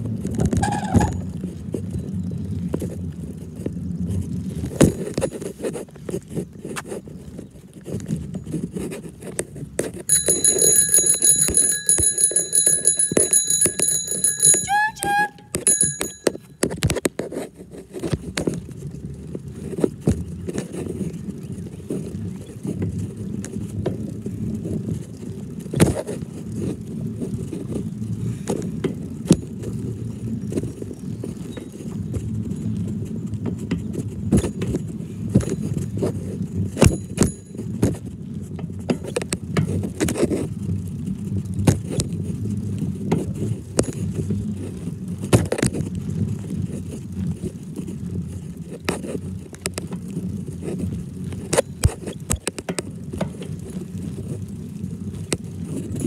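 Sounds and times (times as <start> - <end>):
ride train rumbling: 10.0 - 16.6
train cars clicking and knocking: 10.0 - 17.1.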